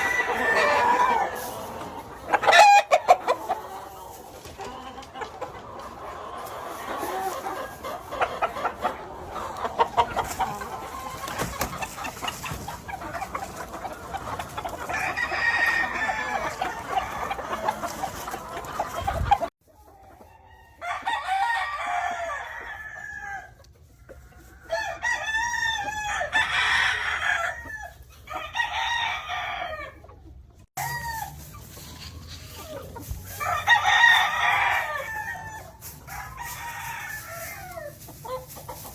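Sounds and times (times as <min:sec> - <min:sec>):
roosters crowing: 0:00.0 - 0:05.0, 0:14.3 - 0:18.5, 0:20.5 - 0:23.6, 0:24.7 - 0:30.0, 0:30.8 - 0:38.0
chickens clucking: 0:00.0 - 0:38.9.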